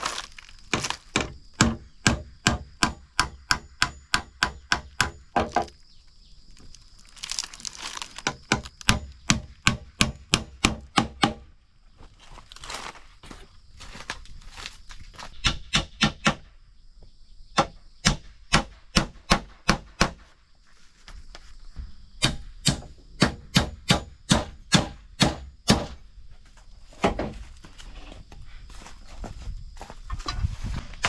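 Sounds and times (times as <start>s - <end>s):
tool chopping wood: 0.0s - 5.8s, 7.2s - 11.5s, 15.4s - 16.4s, 17.6s - 20.2s, 22.2s - 26.0s.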